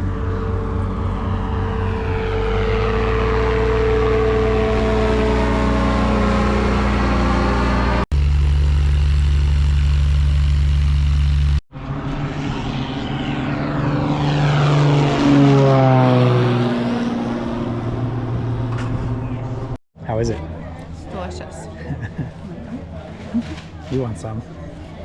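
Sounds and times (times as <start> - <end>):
propeller plane passing by: 0.0 - 19.8
propeller airplane engine drone: 0.0 - 25.0.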